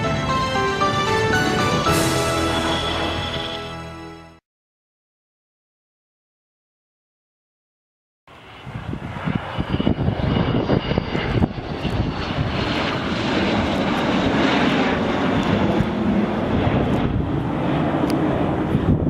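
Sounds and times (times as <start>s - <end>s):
jet engines rumbling: 0.0s - 4.1s, 8.3s - 19.0s
thin high whine: 1.7s - 4.0s.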